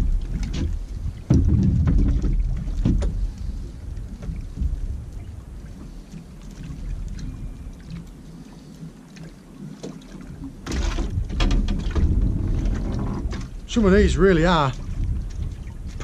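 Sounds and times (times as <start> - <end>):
knocks and splashing in bucket: 0.0 - 3.2, 9.8 - 13.6
water lapping around boat: 0.0 - 16.0
wind: 0.0 - 16.0.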